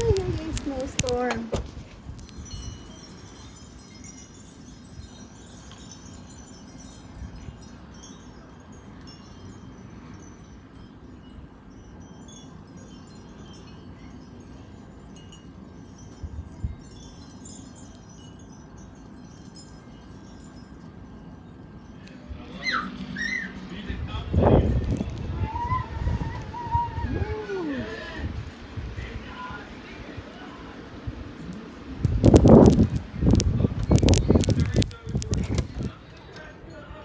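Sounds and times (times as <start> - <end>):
wind rumble on microphone: 0.0 - 8.4, 13.5 - 17.2, 21.9 - 36.0
wind chimes tinkling: 0.0 - 25.4, 31.3 - 36.0.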